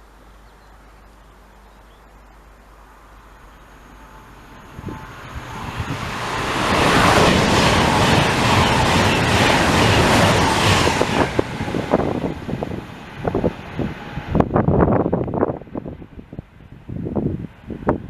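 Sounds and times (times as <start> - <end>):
train passing at speed: 2.8 - 18.0
wind buffeting microphone: 4.1 - 18.0.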